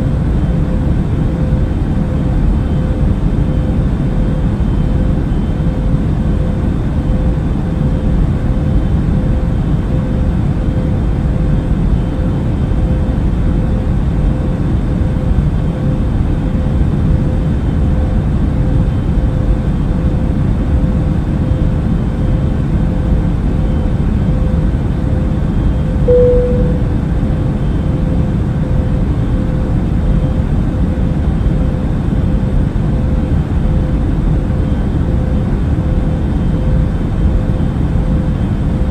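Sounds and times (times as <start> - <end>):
airplane engines and airflow rumble: 0.0 - 38.9
faint constant hum: 0.0 - 38.9
short cabin tone: 26.0 - 27.1.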